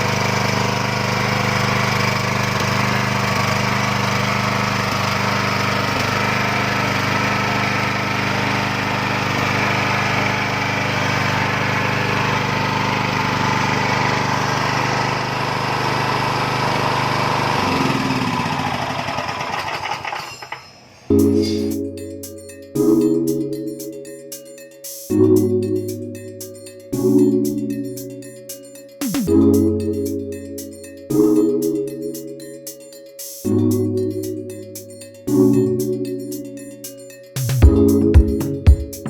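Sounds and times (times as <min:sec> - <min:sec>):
engine running and shutting off: 0:00.0 - 0:21.7, 0:29.0 - 0:29.8.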